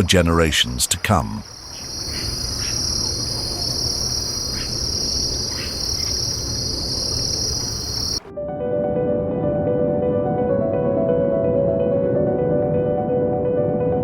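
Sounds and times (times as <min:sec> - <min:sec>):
insect chorus: 0:00.4 - 0:08.3.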